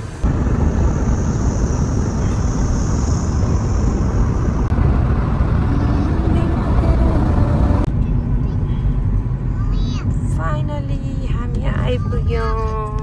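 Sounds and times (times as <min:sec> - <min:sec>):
high hiss: 0:00.0 - 0:07.9
car road and engine noise: 0:00.0 - 0:13.0.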